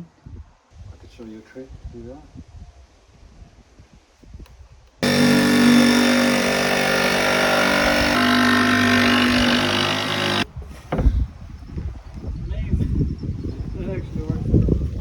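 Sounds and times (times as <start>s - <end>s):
loud machine drone: 5.0s - 10.4s.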